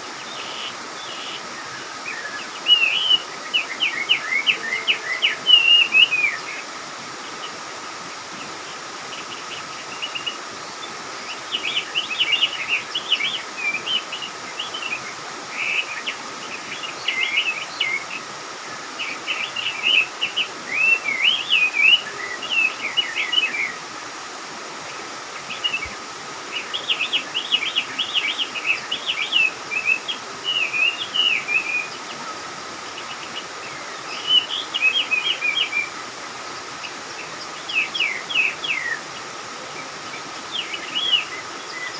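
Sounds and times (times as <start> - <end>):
faint background hiss: 0.0 - 41.9
songbirds chirping: 0.0 - 41.9.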